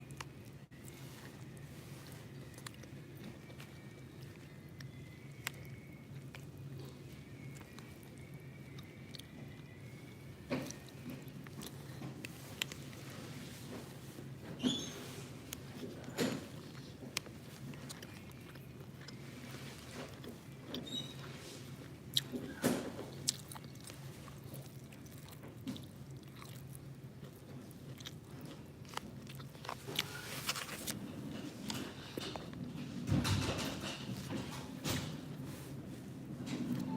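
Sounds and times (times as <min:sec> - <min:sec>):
person chewing food: 0:00.0 - 0:14.4, 0:15.4 - 0:32.6
faint low hum: 0:00.0 - 0:36.9.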